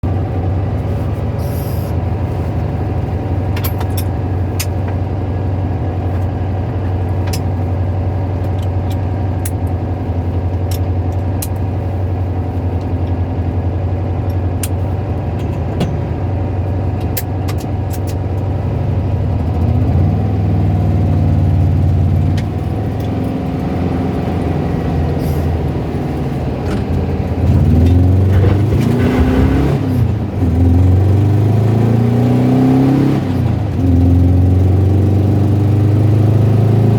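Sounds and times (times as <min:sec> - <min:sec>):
car engine idling with rattling: 0:00.0 - 0:36.9
car engine revving: 0:13.6 - 0:36.9.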